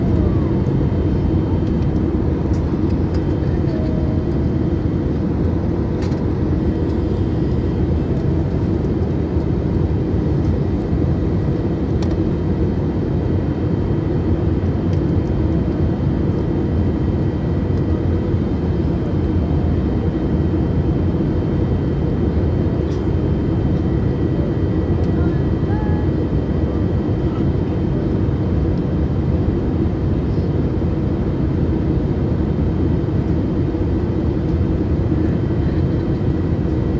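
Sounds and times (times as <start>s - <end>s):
airliner cabin engine rumble: 0.0s - 36.9s.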